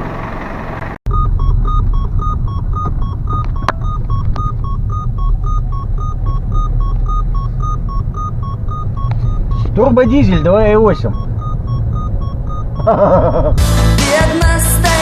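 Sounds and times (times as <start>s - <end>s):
diesel engine idling: 0.0s - 15.0s
two-note electronic beeping: 1.1s - 13.6s
sharp clicks: 1.2s - 12.8s.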